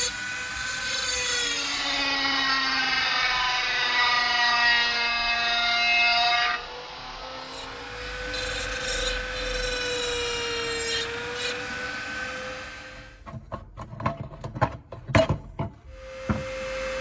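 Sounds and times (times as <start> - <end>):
power tool motor whining: 6.6 - 13.2, 15.9 - 17.0
sharp irregular clicks and knocks: 13.2 - 15.8.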